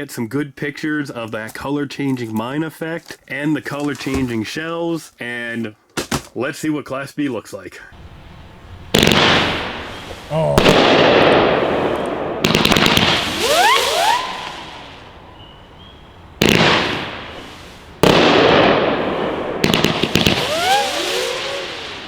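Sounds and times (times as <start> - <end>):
fireworks launch and burst reports: 8.0 - 15.2, 16.2 - 22.0
fireworks whizzing: 8.0 - 22.0.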